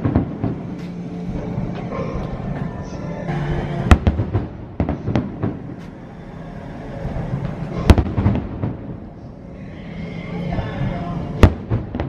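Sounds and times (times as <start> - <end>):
fireworks bangs: 0.0 - 0.8, 3.8 - 5.8, 7.8 - 9.1, 11.4 - 12.0.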